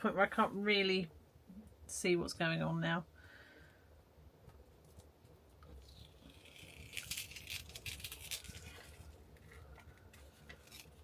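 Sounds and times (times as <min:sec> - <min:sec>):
scratchy crinkling and rubbing: 0:04.7 - 0:11.0.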